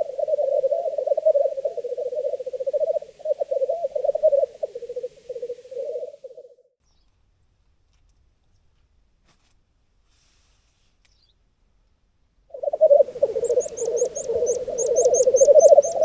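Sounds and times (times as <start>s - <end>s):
grouse bubbling song: 0.0s - 6.5s, 12.5s - 16.0s.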